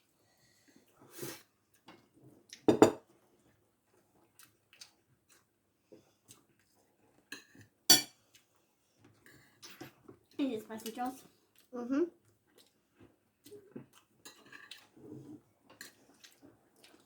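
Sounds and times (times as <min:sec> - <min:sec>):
cutlery clinking on dishes: 0:02.7 - 0:03.0, 0:07.3 - 0:08.2, 0:14.3 - 0:14.8.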